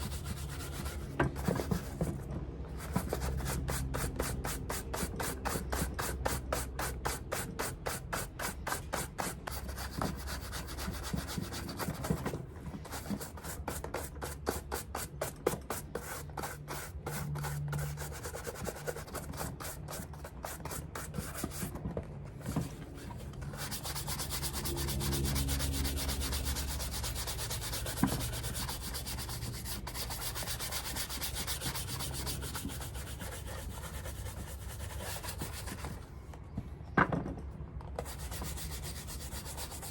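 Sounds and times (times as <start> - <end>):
brush scrubbing leather shoe: 23.2 - 35.7.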